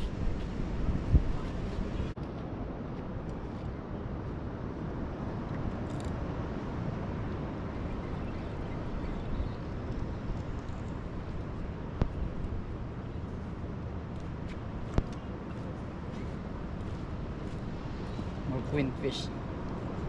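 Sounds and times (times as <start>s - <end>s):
outdoor background rush: 0.0s - 20.0s.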